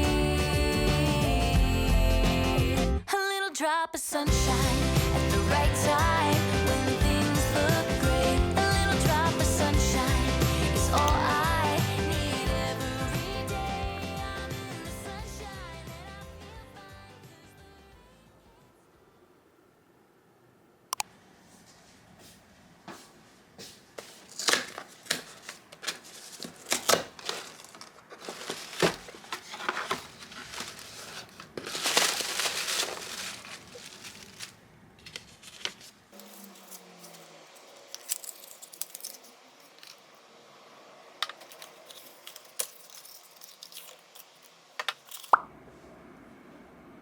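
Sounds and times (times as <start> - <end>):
paper crinkling and tearing: 24.0 - 40.0.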